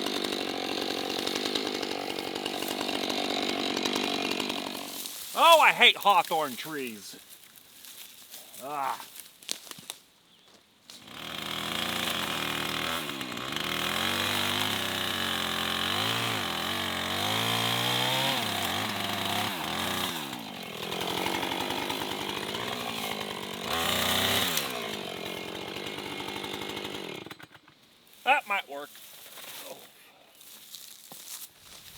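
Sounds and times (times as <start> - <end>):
chainsaw cutting wood: 0.0 - 7.0, 10.9 - 27.8.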